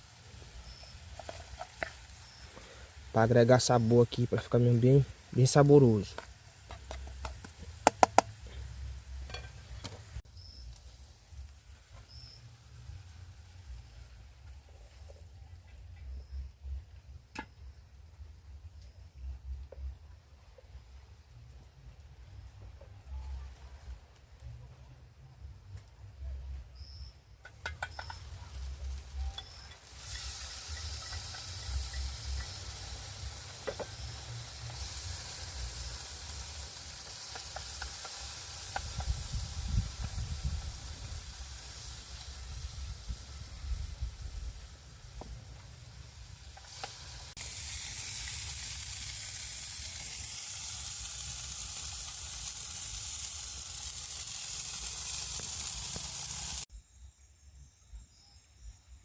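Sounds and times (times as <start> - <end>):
food sizzling in a pan: 0.0 - 15.4, 26.8 - 56.7.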